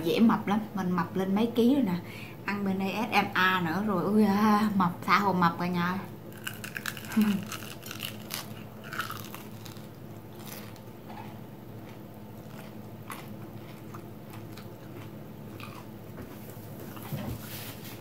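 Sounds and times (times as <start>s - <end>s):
steady low hum: 0.0s - 18.0s
person chewing crunchy food: 6.3s - 17.2s.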